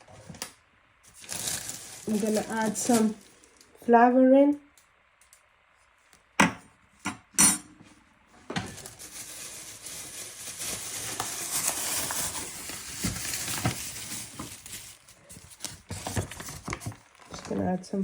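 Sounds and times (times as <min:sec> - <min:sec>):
flour rustling and pouring: 0:01.0 - 0:03.6, 0:08.7 - 0:17.6.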